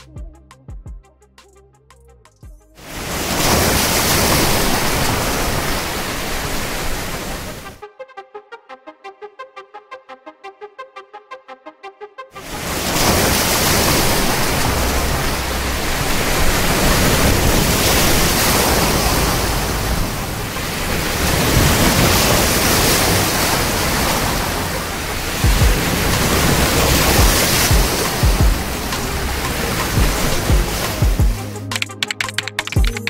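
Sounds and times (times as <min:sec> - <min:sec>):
sea waves washing on shore: 0:02.8 - 0:07.8, 0:12.4 - 0:33.0.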